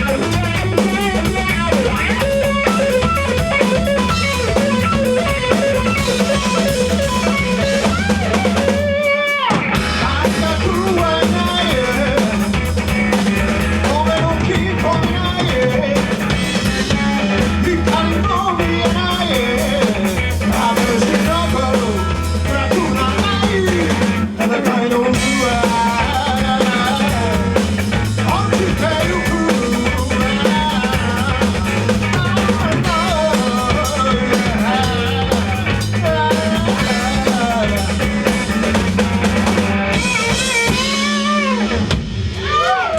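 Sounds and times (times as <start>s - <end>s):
person singing: 0.0s - 42.9s
rock band playing live: 0.0s - 42.9s.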